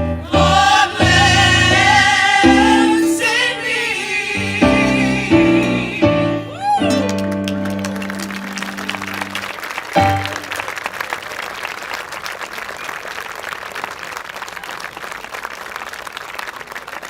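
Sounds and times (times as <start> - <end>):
gospel band chord: 0.0 - 10.7
audience clapping: 6.6 - 17.0.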